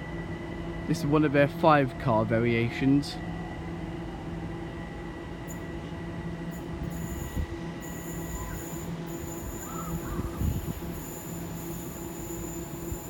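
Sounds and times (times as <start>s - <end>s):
electric train hum: 0.0s - 13.0s
thin high whine: 6.5s - 13.0s.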